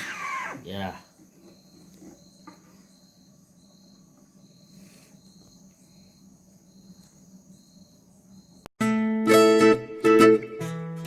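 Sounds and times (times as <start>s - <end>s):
cricket chirping: 0.0s - 8.7s.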